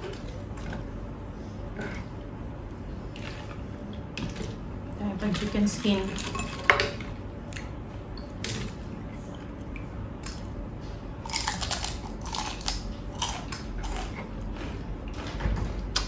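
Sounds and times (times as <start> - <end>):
crispy chicken skin crunching: 11.2 - 14.2.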